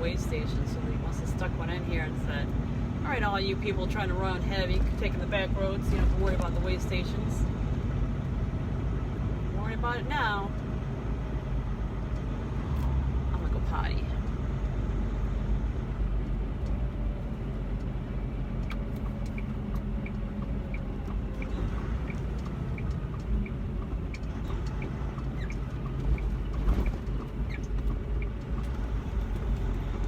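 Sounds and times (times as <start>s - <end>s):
diesel engine rumble inside cab: 0.0s - 30.0s
turn signal ticking: 11.5s - 30.0s.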